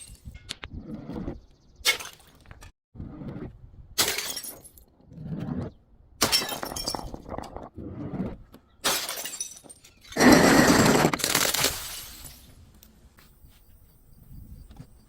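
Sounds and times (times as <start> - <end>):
glass bottles smashing: 4.0 - 4.8, 6.2 - 7.2, 8.8 - 12.6.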